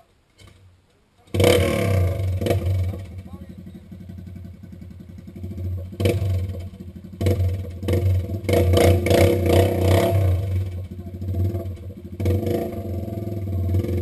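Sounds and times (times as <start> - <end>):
atv engine chugging and revving: 1.3 - 14.0
clatter: 1.3 - 14.0.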